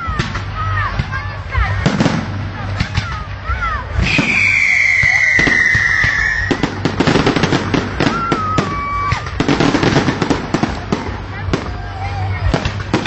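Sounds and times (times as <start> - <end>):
fireworks crackling and popping: 0.0 - 13.0
whistling firework: 4.0 - 11.0.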